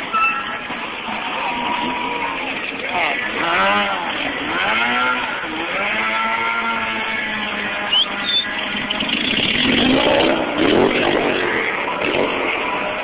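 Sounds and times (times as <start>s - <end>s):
motorcycle engine revving: 2.5s - 13.0s.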